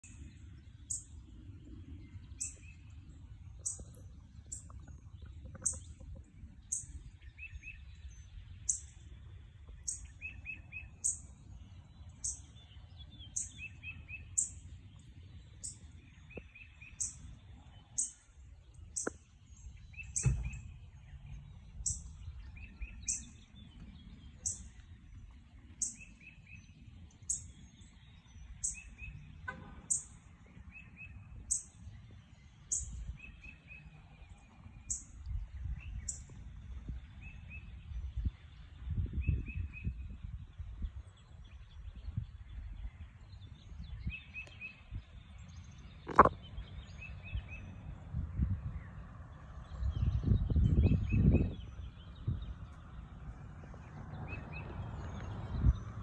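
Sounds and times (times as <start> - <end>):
high thin bird chirp: 19.9 - 20.8
brief thump: 20.2 - 20.6.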